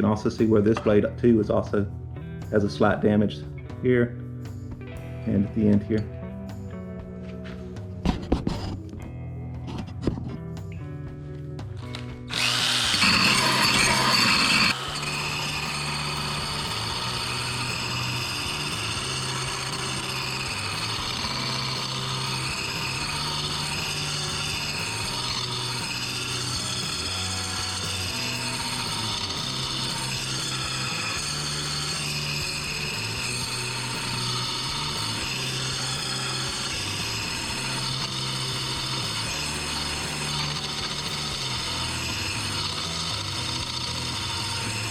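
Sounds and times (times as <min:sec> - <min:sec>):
drill sanding wheel grinding steel: 0:11.8 - 0:44.9.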